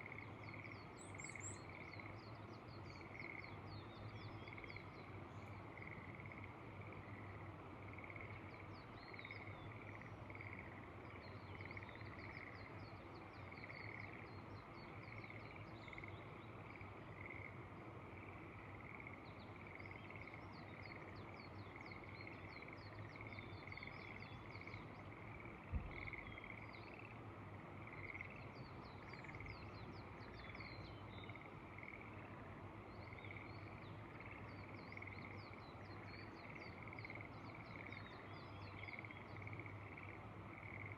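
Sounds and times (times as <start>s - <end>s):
frogs calling in pulsing trill: 18.2s - 27.2s, 30.3s - 32.4s, 33.0s - 40.9s.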